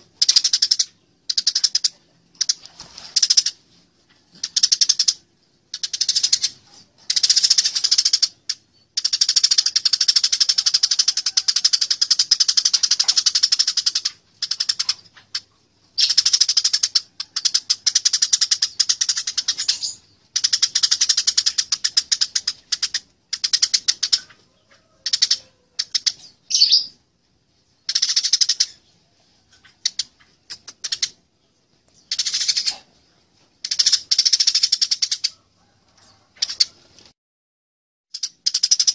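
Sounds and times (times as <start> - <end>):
sparrows chattering chirps: 4.4 - 27.0, 27.6 - 35.3.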